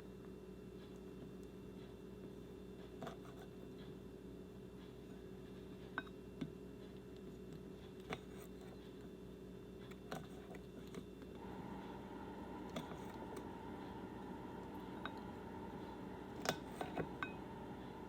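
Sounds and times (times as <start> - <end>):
steady low hum: 0.0 - 18.0
steady higher tone: 11.4 - 18.0.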